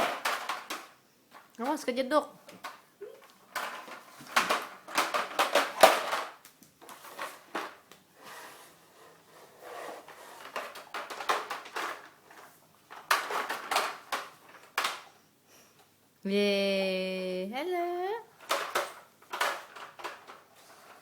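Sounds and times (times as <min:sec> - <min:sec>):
toy truck clattering and knocking: 0:00.0 - 0:01.9, 0:03.5 - 0:07.8, 0:09.3 - 0:15.2, 0:18.4 - 0:21.0.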